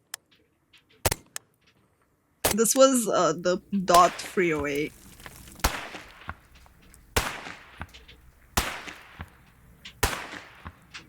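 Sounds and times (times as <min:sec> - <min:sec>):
rifle shots: 0:03.9 - 0:11.0.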